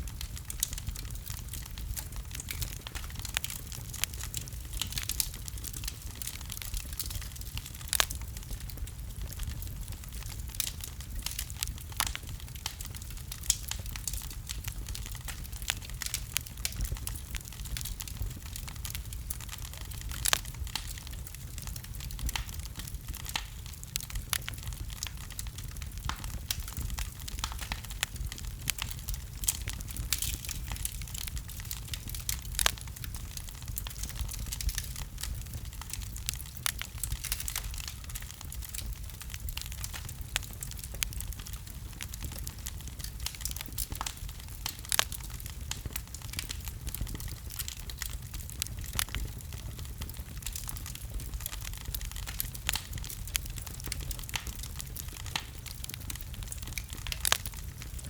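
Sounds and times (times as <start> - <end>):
fire crackling and popping: 0.0 - 58.0
low rumble of flames: 0.0 - 58.0.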